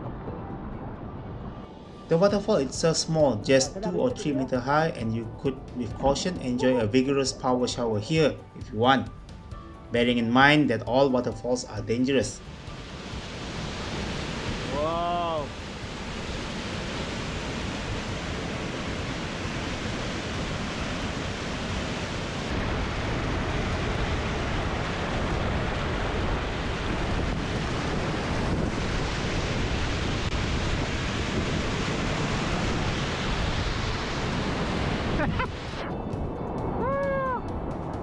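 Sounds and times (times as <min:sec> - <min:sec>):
waterfall pouring onto rocks: 0:13.8 - 0:16.6, 0:22.5 - 0:35.2.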